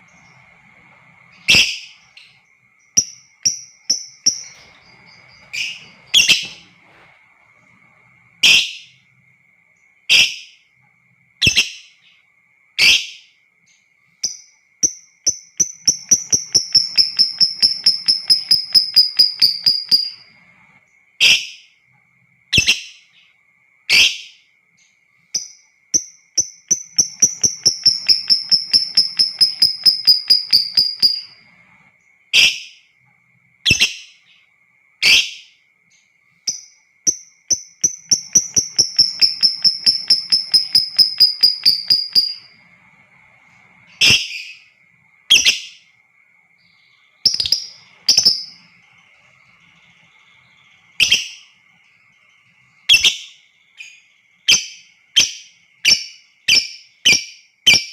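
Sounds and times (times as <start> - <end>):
faint steady high tone: 0.0 - 57.9
bird chattering trill: 1.3 - 2.4, 15.3 - 20.3, 26.0 - 31.4, 36.5 - 42.6, 47.2 - 48.7
lovebird screeching calls: 1.4 - 2.1.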